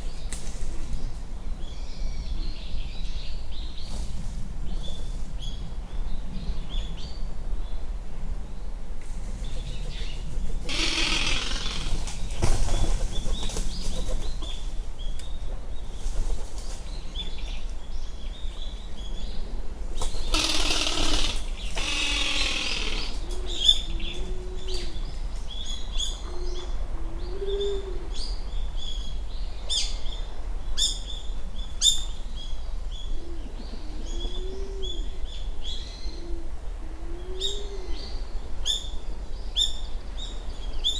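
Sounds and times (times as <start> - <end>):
pigeon rattling call: 10.6 - 12.3, 20.1 - 23.7.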